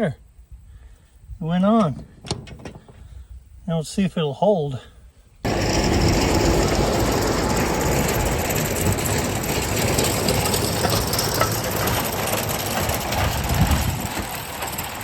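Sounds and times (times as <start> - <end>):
metal clanks and knocks: 1.8 - 3.0, 7.8 - 15.0
tractor engine running: 5.4 - 15.0
manure spreader chain and spinners: 5.5 - 15.0.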